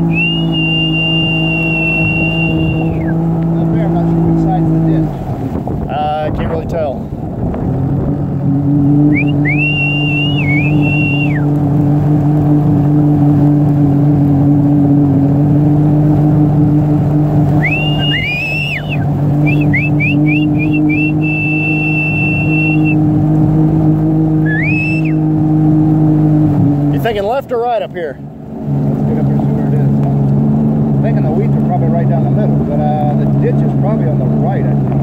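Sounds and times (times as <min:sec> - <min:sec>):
high whistling tones: 0:00.0 - 0:03.2, 0:09.0 - 0:11.5, 0:17.5 - 0:23.1, 0:24.4 - 0:25.3
engine running steadily: 0:00.0 - 0:35.0.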